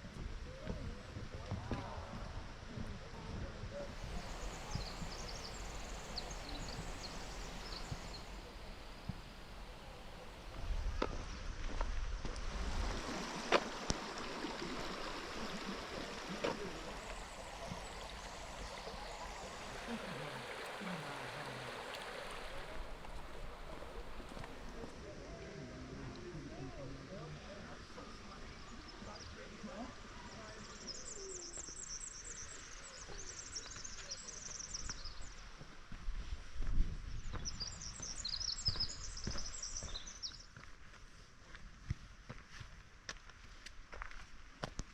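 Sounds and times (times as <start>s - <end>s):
low hooting calls: 3.9s - 10.8s, 14.0s - 24.9s
stream trickling and gurgling: 3.9s - 25.2s, 25.8s - 36.0s.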